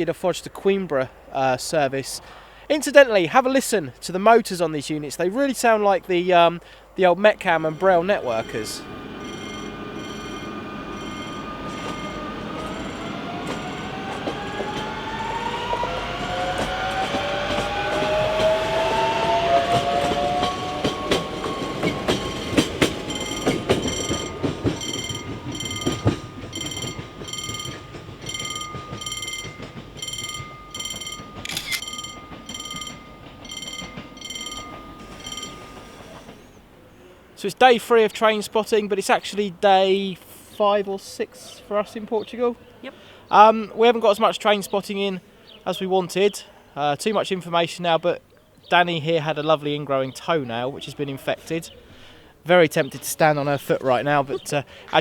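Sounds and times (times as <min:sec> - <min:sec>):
wheels clicking over rail joints: 0:06.6 - 0:36.8, 0:49.5 - 0:55.0
high ringing: 0:07.4 - 0:36.8
electric train motors whining: 0:07.4 - 0:36.9.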